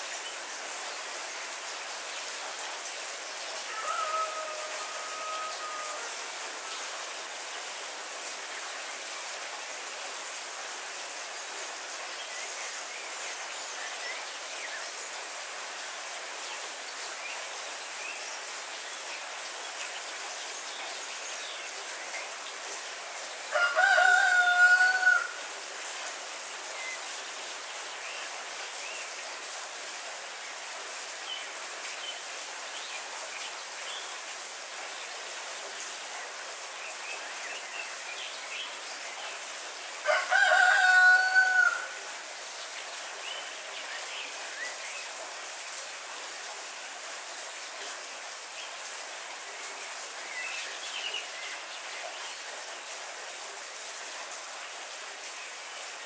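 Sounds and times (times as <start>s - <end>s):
heavy rain: 0.0s - 56.0s
rooster crowing: 3.7s - 6.2s, 23.5s - 25.4s, 40.0s - 42.0s.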